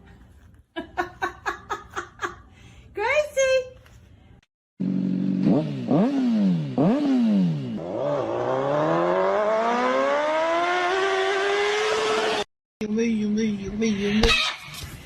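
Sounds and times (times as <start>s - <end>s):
engine revving: 4.8s - 12.5s.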